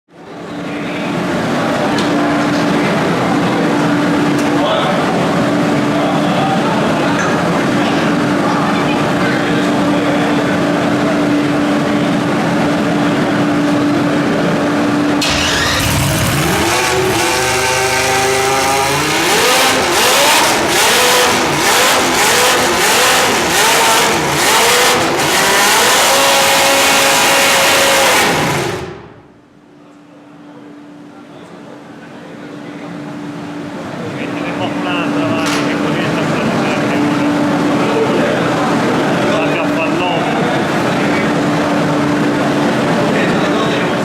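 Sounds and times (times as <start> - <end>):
racing car engine revving: 1.2 - 29.4.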